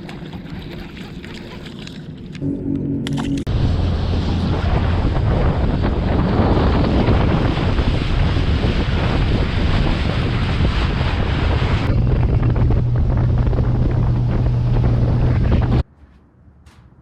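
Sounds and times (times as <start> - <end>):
boat engine drone: 0.0 - 15.8
wind buffeting microphone: 3.4 - 15.9.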